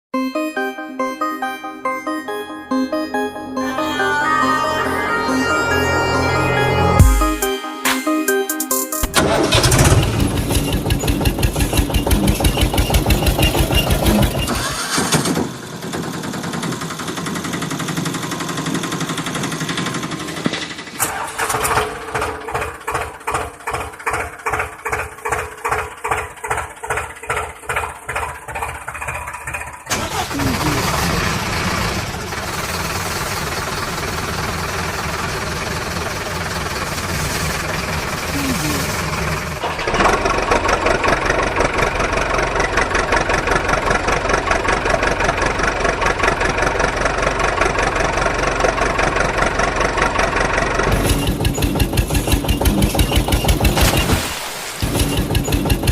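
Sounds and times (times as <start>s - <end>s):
vehicle engine chugging: 9.0s - 54.1s, 54.8s - 55.9s.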